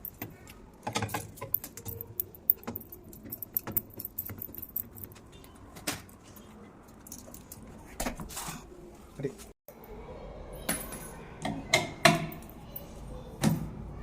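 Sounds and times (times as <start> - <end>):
small metal parts clinking: 0.0 - 5.3.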